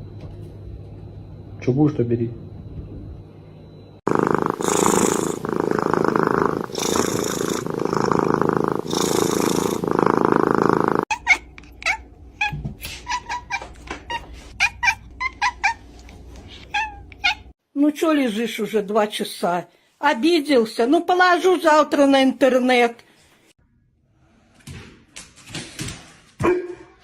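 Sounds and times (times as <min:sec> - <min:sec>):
cat purring: 0:04.1 - 0:11.1.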